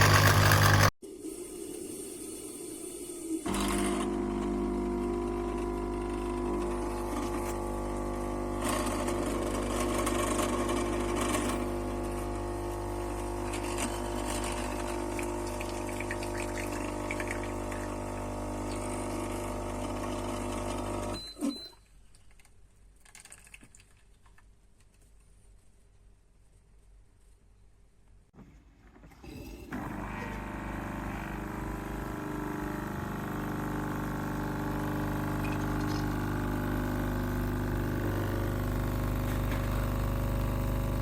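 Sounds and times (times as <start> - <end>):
coffee machine pump humming: 0.0 - 0.9, 3.5 - 21.2, 29.3 - 41.0.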